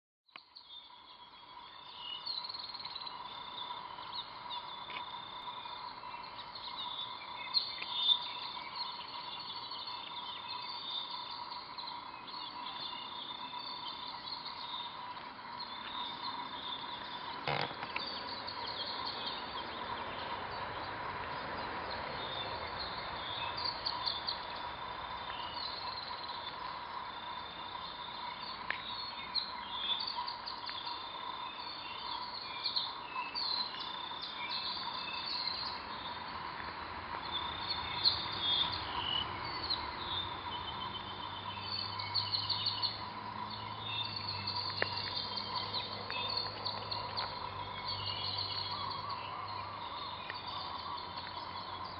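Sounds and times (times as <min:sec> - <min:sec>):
faint steady tone: 0:00.3 - 0:51.9
birds chirping and whistling: 0:00.8 - 0:20.8, 0:37.2 - 0:51.9.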